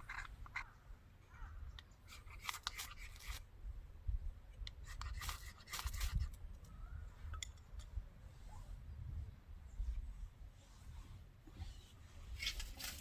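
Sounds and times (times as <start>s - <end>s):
dry scraping strokes: 2.0s - 3.5s, 4.8s - 6.4s, 8.2s - 13.0s.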